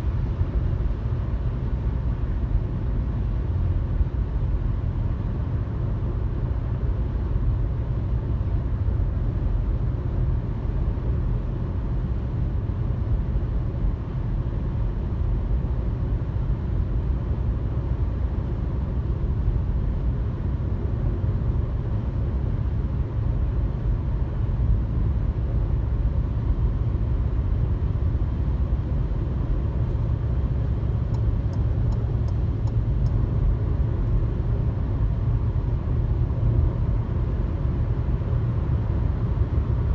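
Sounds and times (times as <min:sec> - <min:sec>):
car road noise: 0:26.9 - 0:39.9
faint high ticks: 0:31.1 - 0:33.2.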